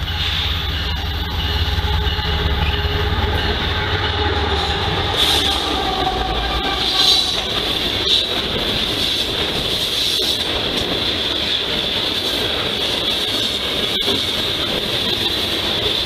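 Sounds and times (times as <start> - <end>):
high-pitched wheel squeal: 0.0 - 8.3
train wheels rumbling on rails: 0.0 - 16.0.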